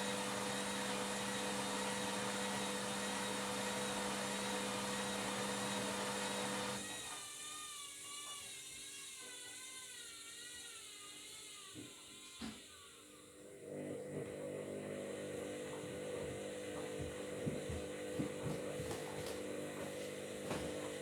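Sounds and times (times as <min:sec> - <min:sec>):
washing machine running: 0:00.0 - 0:07.0, 0:13.4 - 0:21.0.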